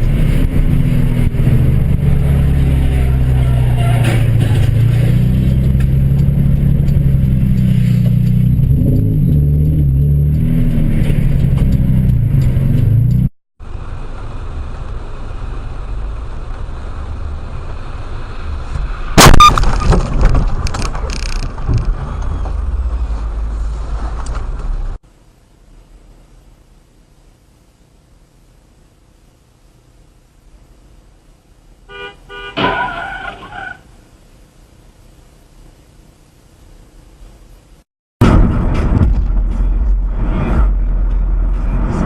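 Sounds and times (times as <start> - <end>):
car engine hum: 0.0 - 19.0, 29.7 - 42.0
road noise: 0.0 - 26.9, 27.8 - 42.0
car crash impact: 19.2 - 22.1, 32.6 - 33.5, 38.2 - 40.9.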